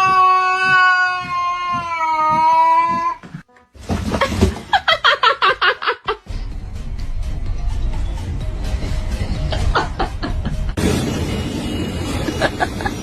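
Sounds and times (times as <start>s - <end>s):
cat yowling: 0.0s - 3.2s.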